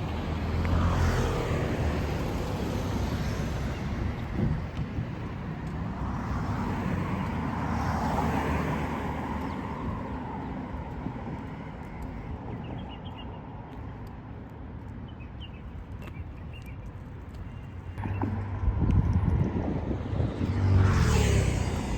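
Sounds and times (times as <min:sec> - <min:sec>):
car passing: 0:00.0 - 0:04.5, 0:05.7 - 0:10.6, 0:18.0 - 0:21.9
traffic hum: 0:00.0 - 0:21.9.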